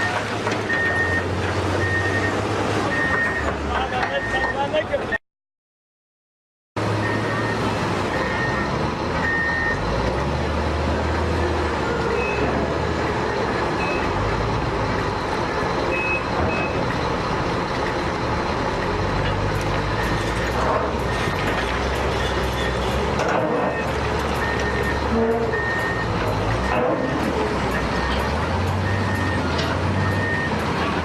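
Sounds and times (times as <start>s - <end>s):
diesel engine running: 6.8s - 31.0s.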